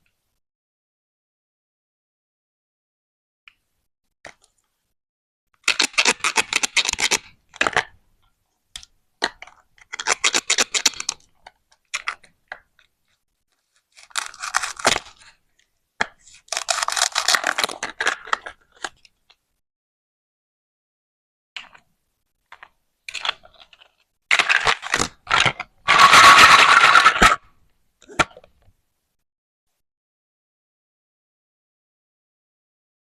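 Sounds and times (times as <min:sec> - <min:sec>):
toy knife cutting plastic food: 0:05.6 - 0:08.0, 0:08.8 - 0:12.7, 0:13.7 - 0:15.4, 0:16.0 - 0:19.0, 0:22.5 - 0:28.5.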